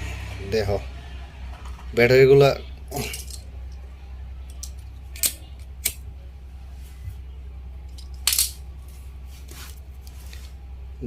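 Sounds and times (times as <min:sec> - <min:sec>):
steady low hum: 0:00.0 - 0:11.0
tools snipping and clicking: 0:04.5 - 0:06.0, 0:07.9 - 0:08.6.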